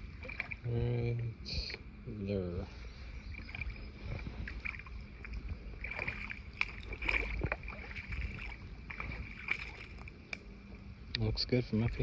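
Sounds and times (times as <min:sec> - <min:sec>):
water splashing and dripping: 0:00.0 - 0:00.6, 0:03.3 - 0:10.4
low steady rumble: 0:00.0 - 0:12.0.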